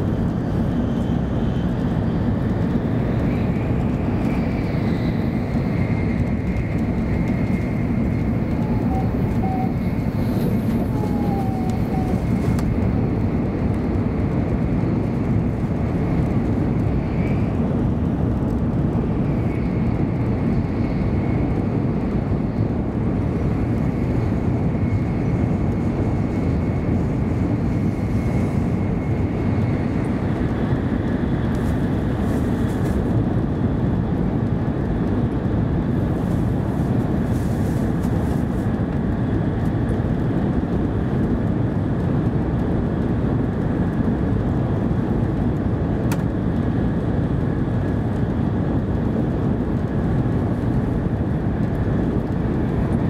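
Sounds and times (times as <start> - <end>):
faint whine: 0.0 - 17.7
train interior rumble and rush: 0.0 - 53.0.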